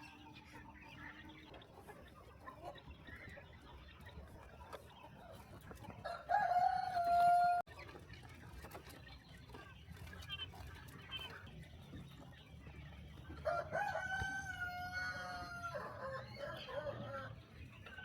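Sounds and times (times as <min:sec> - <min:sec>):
faint clucking of hens: 0:00.0 - 0:18.0
rooster crowing: 0:06.0 - 0:07.7, 0:13.4 - 0:17.3.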